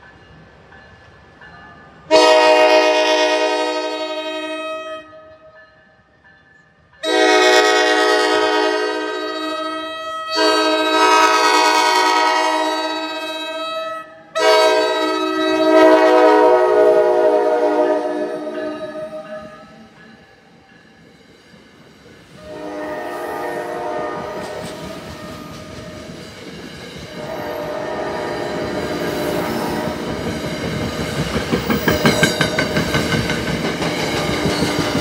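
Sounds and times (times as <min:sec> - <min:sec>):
locomotive horn blasts: 0:02.1 - 0:05.3, 0:07.0 - 0:19.6, 0:22.4 - 0:25.7, 0:27.1 - 0:30.2
train wheels clattering over rail joints: 0:23.8 - 0:35.0.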